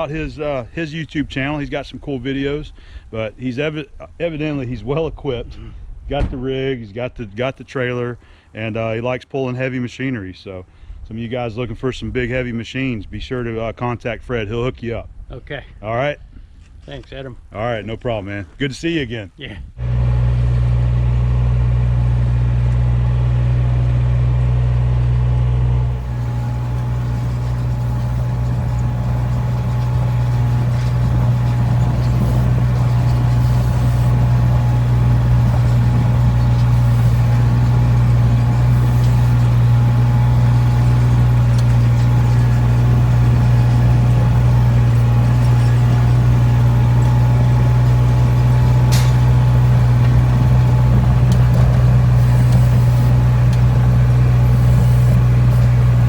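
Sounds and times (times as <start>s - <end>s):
truck engine humming: 19.8s - 56.0s.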